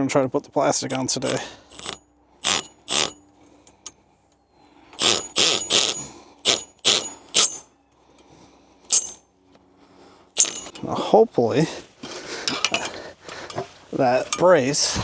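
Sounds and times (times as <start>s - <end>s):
sharp metallic clinks: 0.8s - 3.2s, 5.0s - 7.8s, 8.9s - 9.3s, 10.4s - 11.0s.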